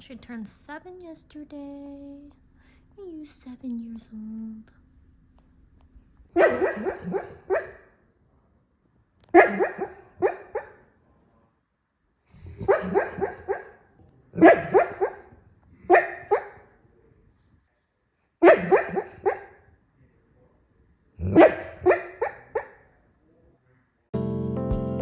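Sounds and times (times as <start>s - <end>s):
dog barking: 6.3s - 8.0s, 9.3s - 10.9s, 12.4s - 16.8s, 18.4s - 19.7s, 21.2s - 23.0s.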